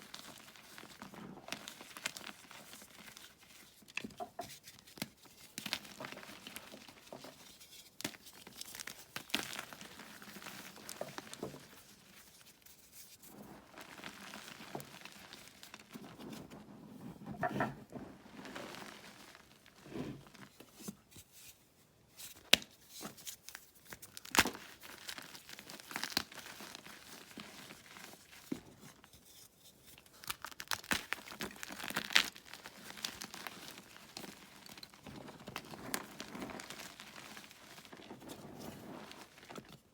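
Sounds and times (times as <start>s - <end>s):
chalk crunching and crackling: 22.3s - 39.7s.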